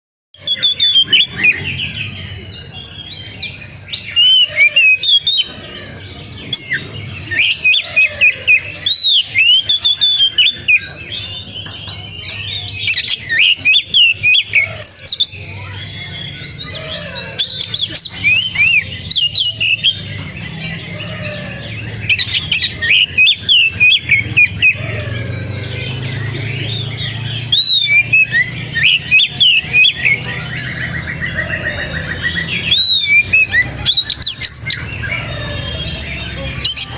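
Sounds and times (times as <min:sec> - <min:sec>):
bird singing whistled notes: 0:03.2 - 0:05.6, 0:06.6 - 0:11.4, 0:12.0 - 0:15.8, 0:16.6 - 0:20.1, 0:22.0 - 0:25.0, 0:25.9 - 0:36.9.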